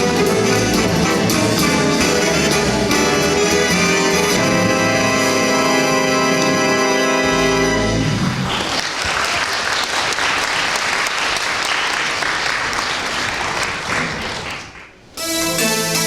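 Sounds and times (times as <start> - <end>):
music: 0.0 - 8.4, 15.2 - 16.0
audience applauding: 8.0 - 15.0.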